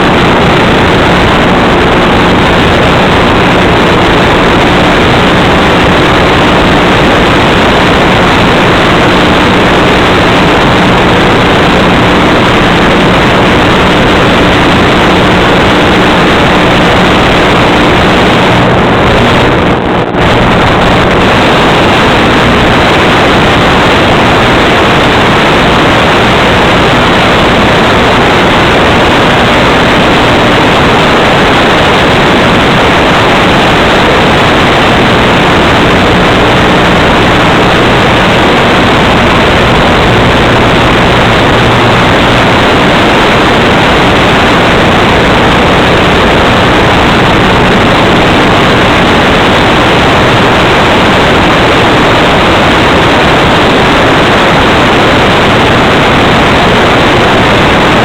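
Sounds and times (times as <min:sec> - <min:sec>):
loud steady hiss: 0:00.0 - 0:58.0.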